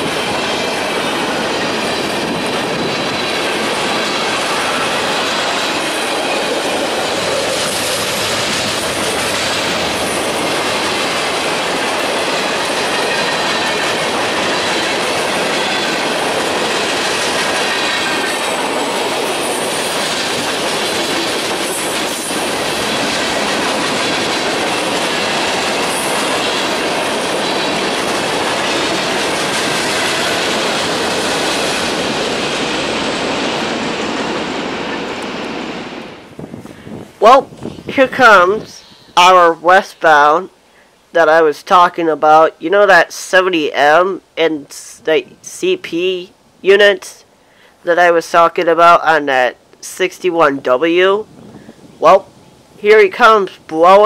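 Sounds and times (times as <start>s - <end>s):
freight train wheels rumbling: 0.0s - 40.1s.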